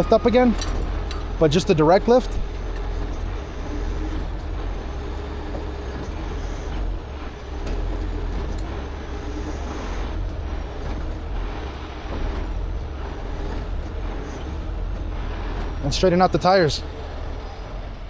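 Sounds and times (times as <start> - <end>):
tow truck diesel engine running: 0.0 - 18.0.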